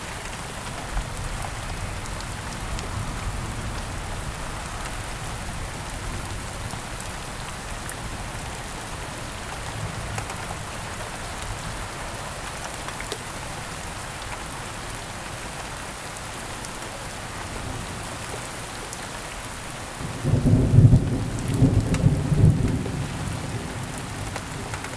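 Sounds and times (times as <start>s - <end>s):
heavy rain: 0.0s - 24.9s
low rumble of thunder: 0.7s - 11.8s, 20.0s - 24.9s.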